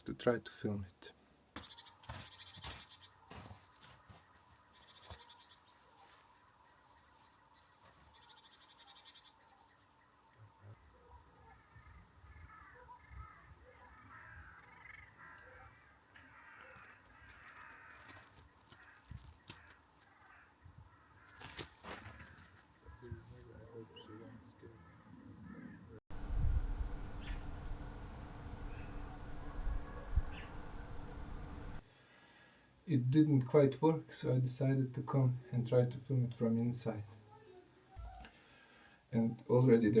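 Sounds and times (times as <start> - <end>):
small songbirds twittering: 1.6 - 16.6, 23.9 - 31.8.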